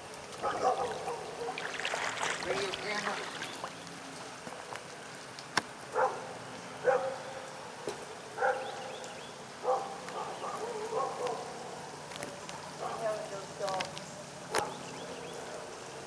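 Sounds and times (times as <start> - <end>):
dog barking: 0.4 - 1.6, 5.9 - 7.2, 8.4 - 8.9, 9.6 - 11.7, 12.8 - 13.2, 14.5 - 14.8.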